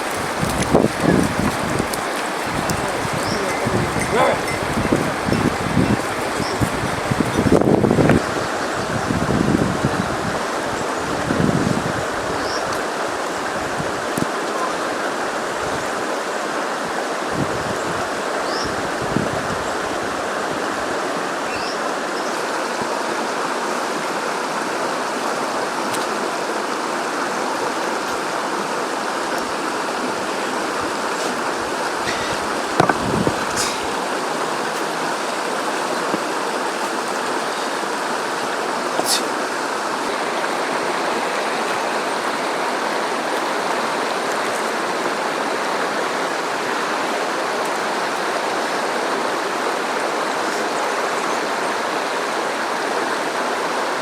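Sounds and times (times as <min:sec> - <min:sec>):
river water flowing: 0:00.0 - 0:54.0
soft knocks: 0:32.1 - 0:33.8.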